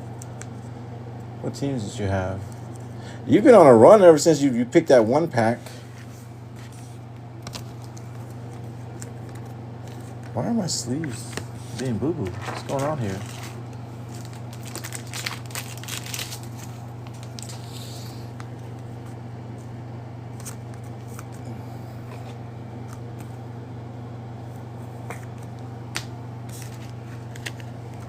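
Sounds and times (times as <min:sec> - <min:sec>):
steady low hum: 0:00.0 - 0:28.0
cards rustling into plastic sleeves: 0:06.0 - 0:19.2, 0:20.3 - 0:21.5, 0:25.0 - 0:28.0.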